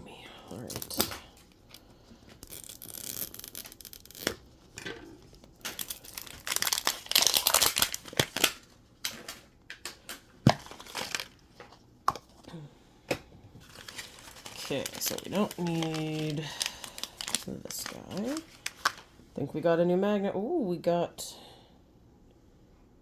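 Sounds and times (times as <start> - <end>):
plastic wrapping tearing and crinkling: 0.5 - 11.4, 13.6 - 19.1.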